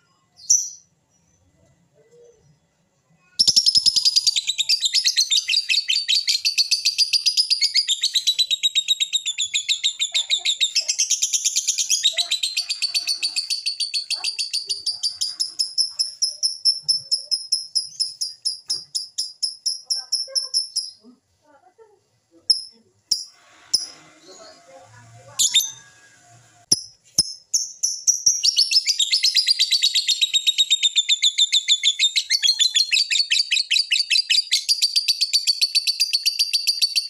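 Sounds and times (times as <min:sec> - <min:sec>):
bird chirping and trilling: 0:03.4 - 0:21.0, 0:22.5 - 0:37.0.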